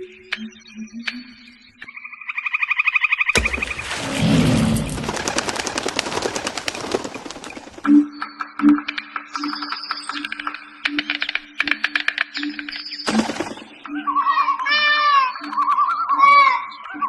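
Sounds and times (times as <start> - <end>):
harsh rapid bird rattle: 4.5 - 7.9.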